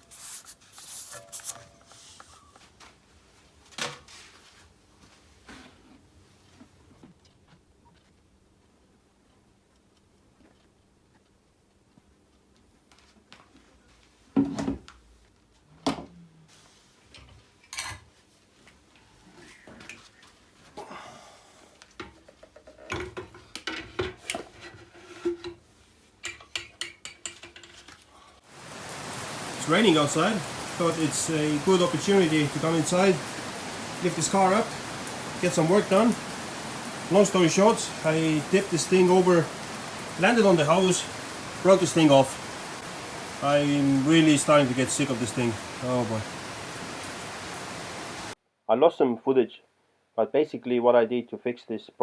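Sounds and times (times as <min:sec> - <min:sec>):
foam rustling and scraping: 0:00.0 - 0:02.6.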